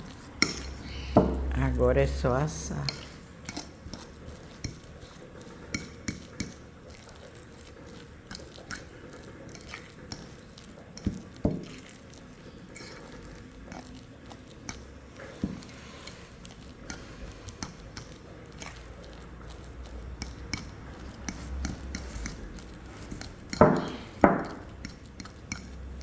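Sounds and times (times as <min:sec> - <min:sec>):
utensils clinking on dishes: 0:00.0 - 0:01.4, 0:23.1 - 0:25.8.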